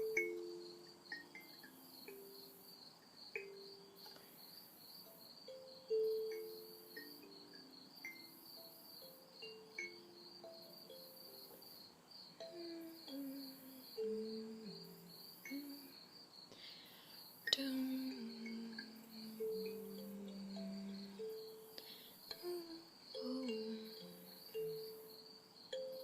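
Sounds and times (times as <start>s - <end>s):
insects chirping: 0.0s - 26.0s
soft ambient music: 17.5s - 22.6s.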